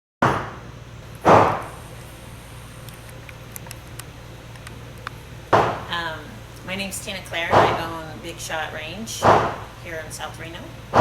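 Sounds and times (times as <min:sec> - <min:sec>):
sharp loud bangs in a room: 0:00.2 - 0:01.7, 0:05.5 - 0:05.9, 0:09.2 - 0:09.7
steady low hum: 0:00.2 - 0:11.0.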